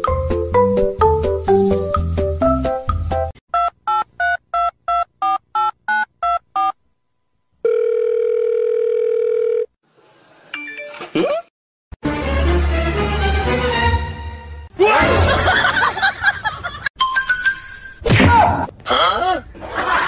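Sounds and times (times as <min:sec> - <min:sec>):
steady dial tone: 0:07.6 - 0:09.7.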